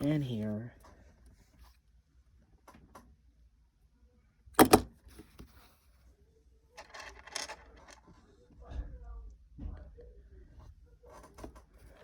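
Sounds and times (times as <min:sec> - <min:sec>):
plastic bricks clicking: 0:06.8 - 0:08.0.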